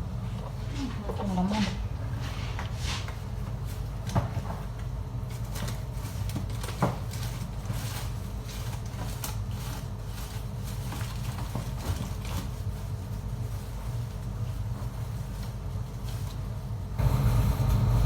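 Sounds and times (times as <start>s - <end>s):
steady low hum: 16.8s - 18.0s.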